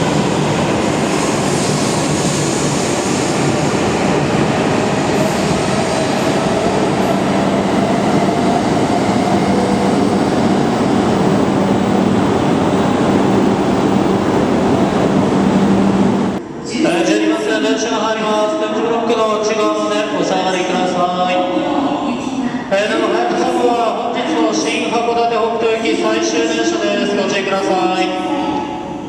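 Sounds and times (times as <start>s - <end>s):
train rushing past: 0.0s - 17.9s
faint whine: 7.1s - 16.4s.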